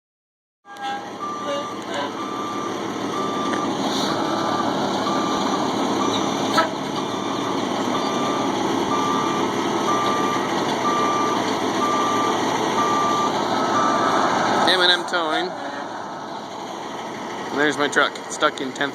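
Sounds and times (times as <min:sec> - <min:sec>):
backup alarm beeping: 0:00.7 - 0:15.0
truck engine running: 0:00.7 - 0:18.9.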